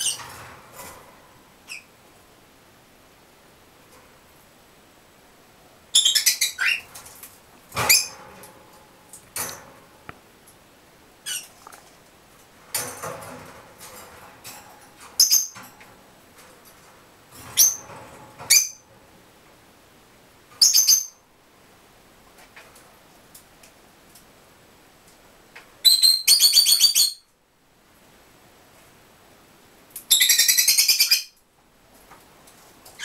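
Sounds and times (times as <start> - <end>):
birds squeaking and chirping: 0.0 - 0.5, 1.6 - 1.9, 5.9 - 7.0, 7.8 - 8.2, 11.2 - 11.6, 15.2 - 15.6, 17.4 - 18.8, 20.6 - 21.2.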